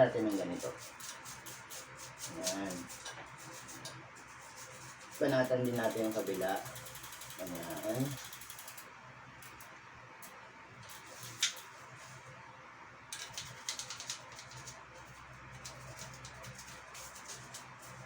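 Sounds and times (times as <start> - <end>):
toothbrush scrubbing bike chain: 0.0 - 8.8, 13.2 - 18.0
bike chain clicking: 5.6 - 8.9.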